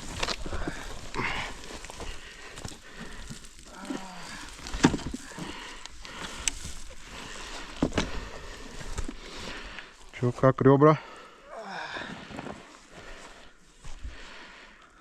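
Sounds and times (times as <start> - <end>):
rustling: 0.0 - 10.2
man groaning in pain: 3.7 - 5.4, 11.4 - 12.2.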